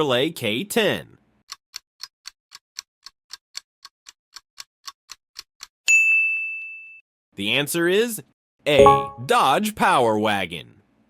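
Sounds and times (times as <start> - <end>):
countdown timer ticking: 8.7 - 9.4
bell ding: 8.8 - 9.3.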